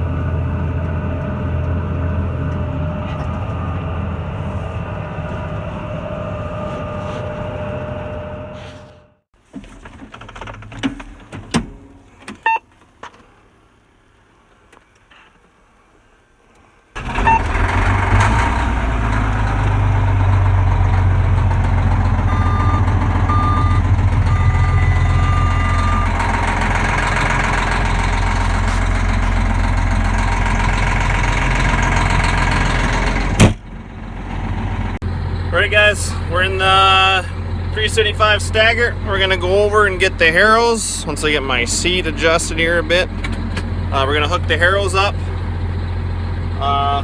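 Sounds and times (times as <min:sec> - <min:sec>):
tractor diesel engine running: 0:00.0 - 0:11.3, 0:16.9 - 0:47.0
short high beeps: 0:22.3 - 0:26.2.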